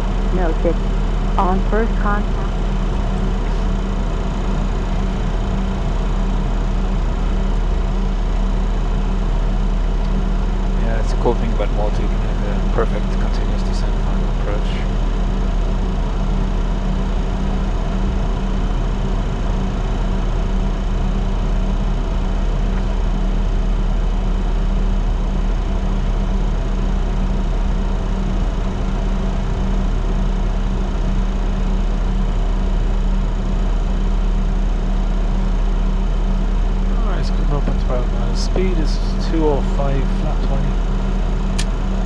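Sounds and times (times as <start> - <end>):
deep hum: 0.0 - 42.0
steady tones: 13.9 - 15.5.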